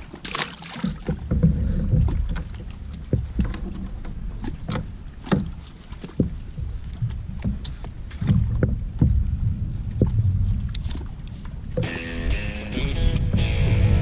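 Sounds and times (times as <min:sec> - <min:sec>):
knocks and clicks against hull: 0:00.0 - 0:12.0, 0:12.8 - 0:14.0
low rumble of movement: 0:00.8 - 0:14.0
wind on microphone: 0:06.2 - 0:14.0.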